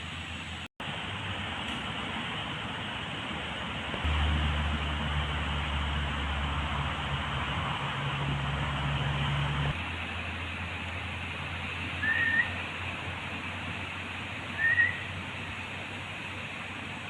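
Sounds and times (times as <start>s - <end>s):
steady outdoor hiss: 0.0s - 17.0s
low hum: 3.8s - 17.0s
short rising whistles: 12.0s - 12.6s, 14.6s - 15.2s.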